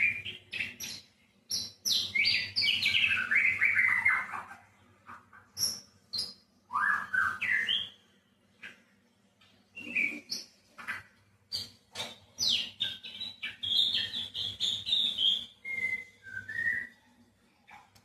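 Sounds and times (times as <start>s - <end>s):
bird whistling and chirping: 0.0s - 4.5s, 5.6s - 8.0s, 9.8s - 11.7s, 12.4s - 17.0s.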